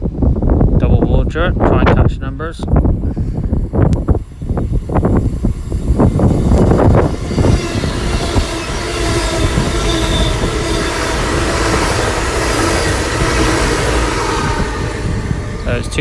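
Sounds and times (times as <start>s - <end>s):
wind buffeting: 0.0s - 16.0s
diesel trains passing: 2.5s - 16.0s
wheel squeal: 4.1s - 15.9s.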